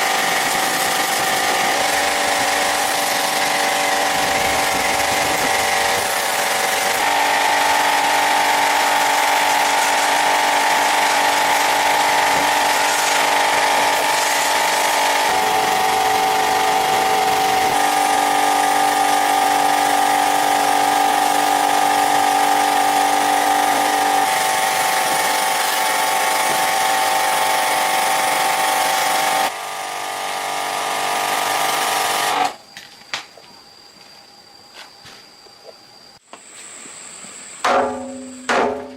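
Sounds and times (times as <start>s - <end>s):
power tool whining: 0.0s - 32.6s.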